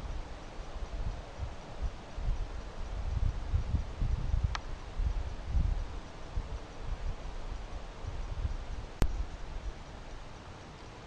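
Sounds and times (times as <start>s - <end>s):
wind buffeting microphone: 0.0s - 10.3s
steady hiss: 0.0s - 11.0s.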